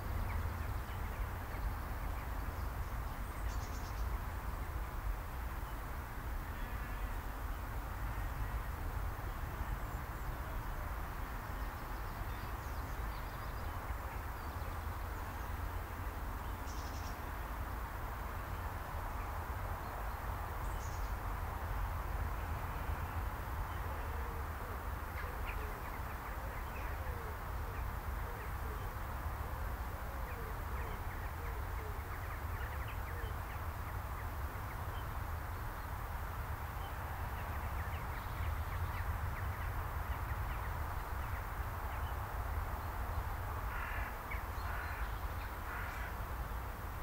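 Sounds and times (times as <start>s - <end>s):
birds calling: 43.7s - 46.2s.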